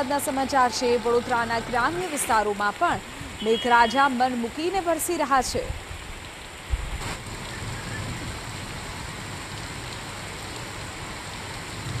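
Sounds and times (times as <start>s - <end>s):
heavy rain on a street: 0.0s - 12.0s.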